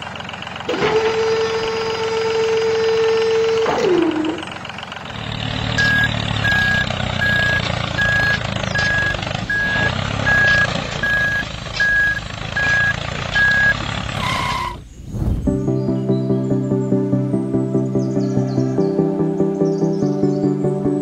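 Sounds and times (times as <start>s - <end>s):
vehicle engine running: 0.0s - 21.0s
backup alarm beeping: 5.8s - 14.4s.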